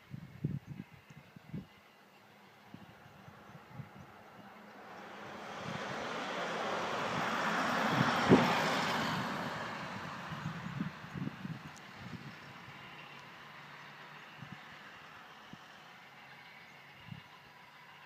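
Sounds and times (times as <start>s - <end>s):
train rushing past: 1.7s - 18.0s.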